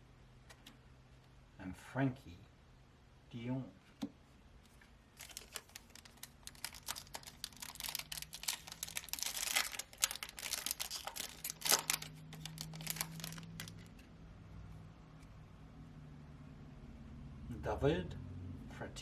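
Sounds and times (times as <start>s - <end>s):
cards being handled: 3.9s - 14.1s
foil wrapper crinkling: 5.2s - 14.0s.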